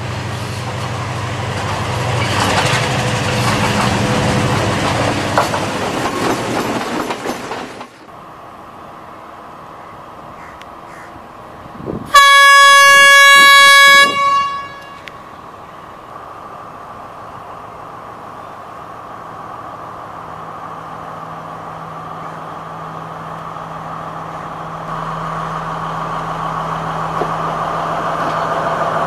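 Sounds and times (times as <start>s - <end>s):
diesel train engine rumble: 0.0s - 29.0s
train wheel clatter: 0.3s - 8.1s, 27.1s - 29.0s
train horn blast: 12.1s - 15.2s.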